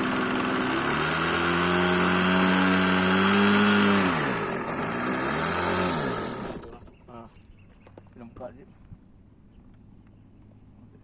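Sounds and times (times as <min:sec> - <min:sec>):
model airplane engine at high revs: 0:00.0 - 0:06.8.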